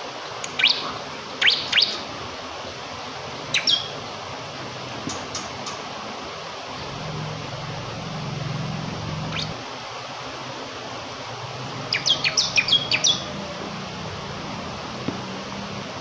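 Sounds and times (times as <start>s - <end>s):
flowing water: 0.0s - 16.0s
bird calling and chirping: 0.5s - 2.2s, 3.4s - 4.1s, 5.1s - 5.9s, 9.3s - 9.6s, 11.7s - 13.4s.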